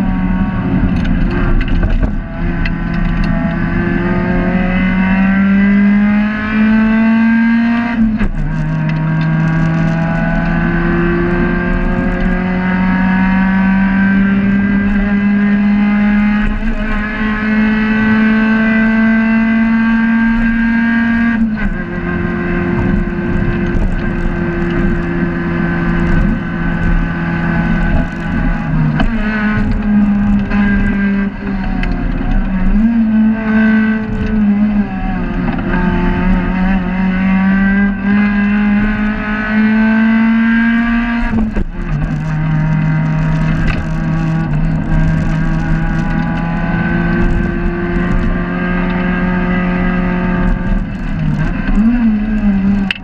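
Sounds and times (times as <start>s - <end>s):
race car engine revving: 0.0s - 53.0s.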